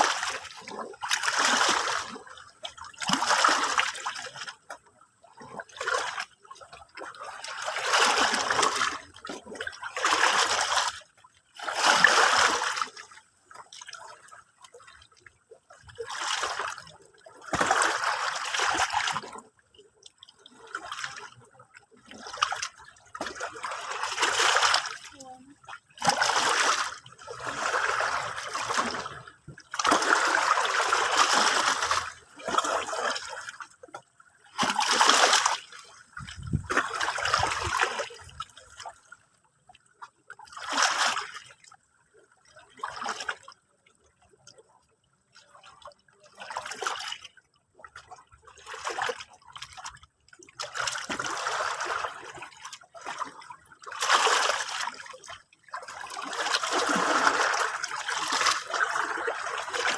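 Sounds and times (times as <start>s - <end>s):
sea water washing and splashing: 0.0s - 4.5s, 6.9s - 14.4s, 15.9s - 19.5s, 20.4s - 38.9s, 50.6s - 59.9s.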